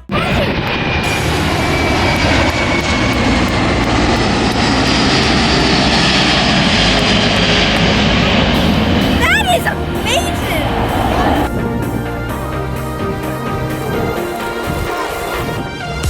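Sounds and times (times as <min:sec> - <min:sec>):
aircraft engine running: 0:00.0 - 0:16.0
faint high whine: 0:00.6 - 0:12.2.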